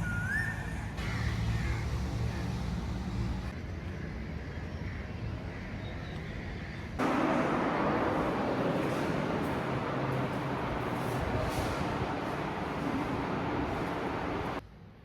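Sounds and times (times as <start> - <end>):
street traffic engine rumble: 0.0 - 14.6.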